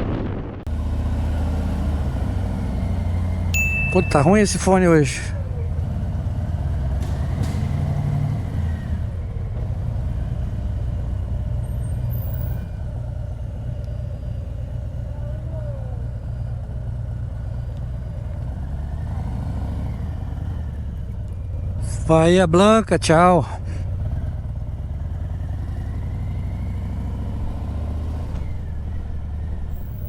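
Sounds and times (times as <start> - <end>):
motorcycle engine rumbling: 0.0 - 30.0.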